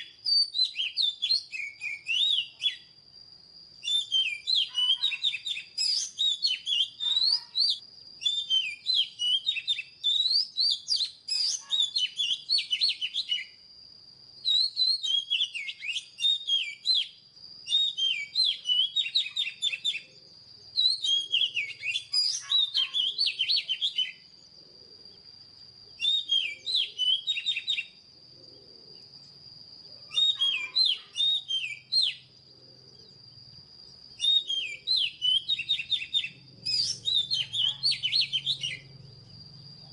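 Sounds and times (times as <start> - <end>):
bird singing whistled phrases: 0.0 - 3.0, 3.8 - 13.6, 14.4 - 24.3, 26.0 - 28.0, 30.1 - 32.3, 34.1 - 38.9.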